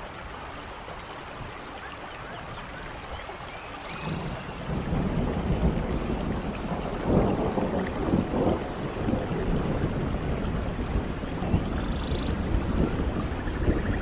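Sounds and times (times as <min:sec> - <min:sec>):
steady rain: 0:00.0 - 0:14.0
rolling thunder rumble: 0:03.9 - 0:14.0.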